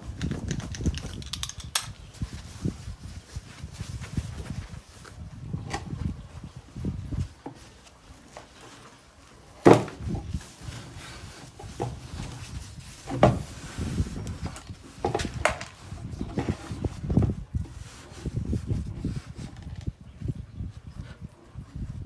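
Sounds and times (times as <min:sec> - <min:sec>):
foam rubbing: 0:06.0 - 0:19.7.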